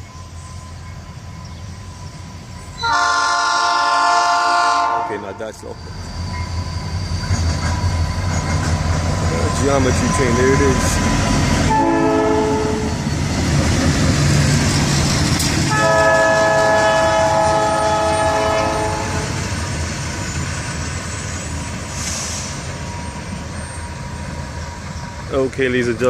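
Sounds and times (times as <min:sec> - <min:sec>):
train rumbling by: 0:00.0 - 0:26.0
train horn blasts: 0:02.8 - 0:05.4, 0:11.7 - 0:13.0, 0:15.7 - 0:19.4.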